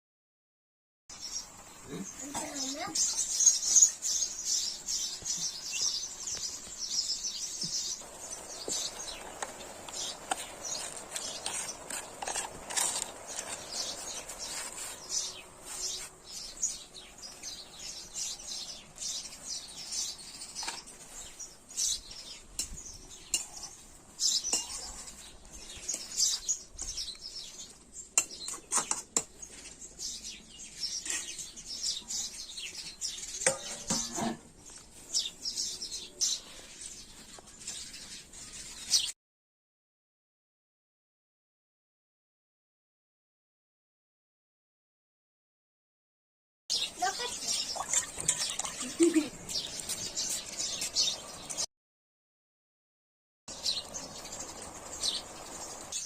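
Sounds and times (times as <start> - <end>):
birds chirping: 1.1 - 39.1, 46.7 - 51.7, 53.5 - 56.0
metal utensils clinking on pots: 24.5 - 24.8, 33.4 - 34.4.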